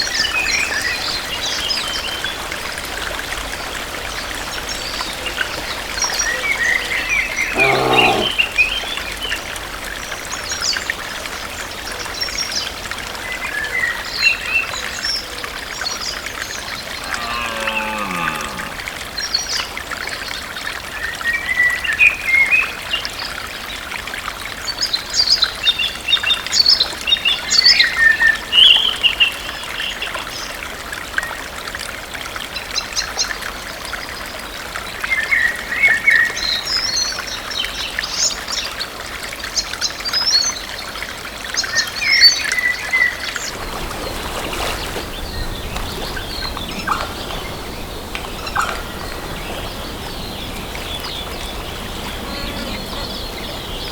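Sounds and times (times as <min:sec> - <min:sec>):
running water: 0:00.0 - 0:28.5, 0:29.4 - 0:53.9
songbirds calling and singing: 0:04.0 - 0:09.2, 0:41.5 - 0:53.9.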